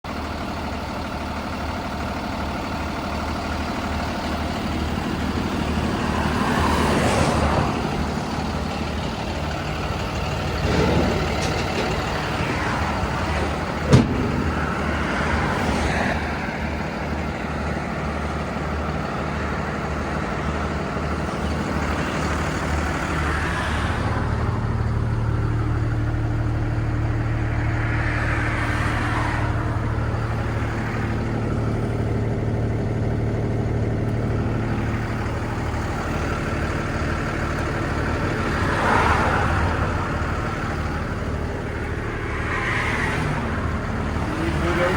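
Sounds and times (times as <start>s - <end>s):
truck engine idling: 0.0s - 44.9s.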